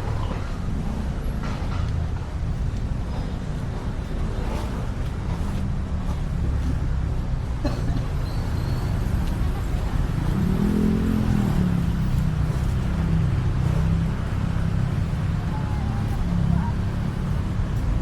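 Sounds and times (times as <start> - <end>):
low road traffic rumble: 0.0 - 18.0
vehicle engine passing: 8.9 - 18.0.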